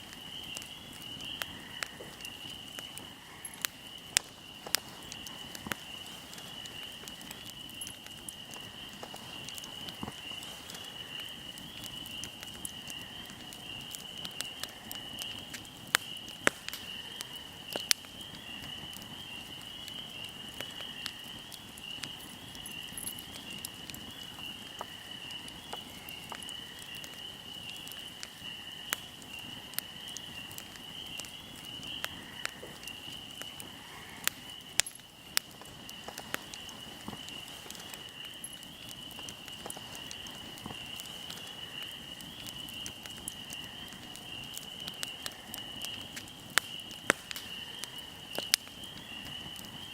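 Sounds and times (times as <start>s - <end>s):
fire crackling and popping: 0.0s - 49.9s
insects trilling: 0.0s - 49.9s.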